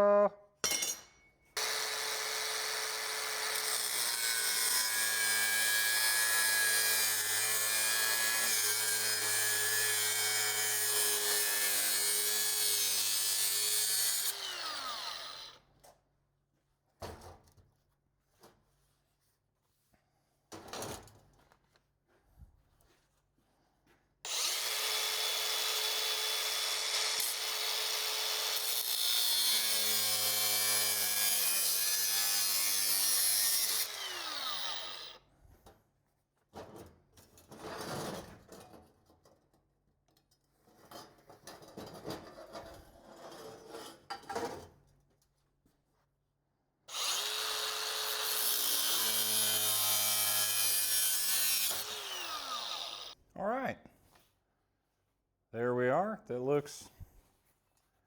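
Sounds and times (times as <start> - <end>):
electric power tool on metal: 1.6 - 15.6, 24.3 - 35.2, 46.9 - 53.2.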